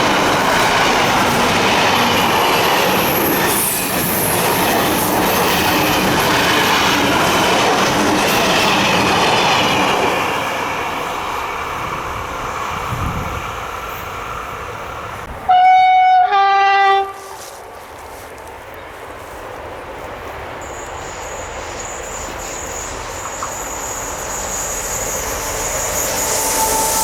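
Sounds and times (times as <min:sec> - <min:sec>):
train rolling on rails: 0:00.0 - 0:27.0
train horn blasts: 0:15.4 - 0:17.6, 0:26.2 - 0:27.0.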